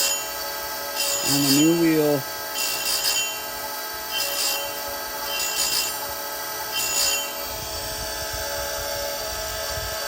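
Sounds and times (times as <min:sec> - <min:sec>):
short high-pitched grind: 0:00.0 - 0:07.5
bench grinder running: 0:00.0 - 0:10.0.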